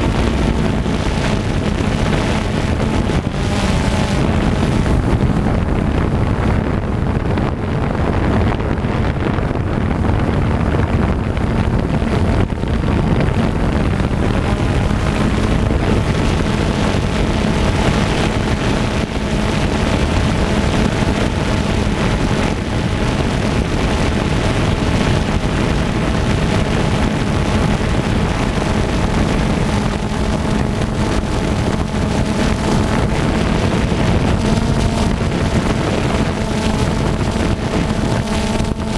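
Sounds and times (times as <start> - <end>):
quadcopter propellers buzzing: 0.0 - 38.9
wind rushing over microphone: 0.0 - 38.9.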